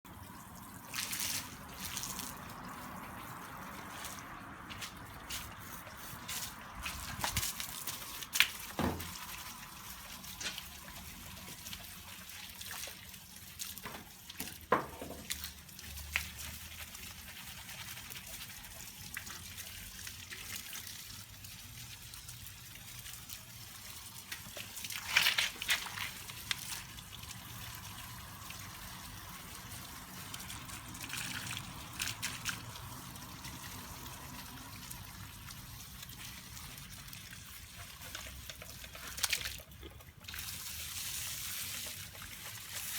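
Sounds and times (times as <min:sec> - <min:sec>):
water trickling and dripping: 0:00.1 - 0:42.9.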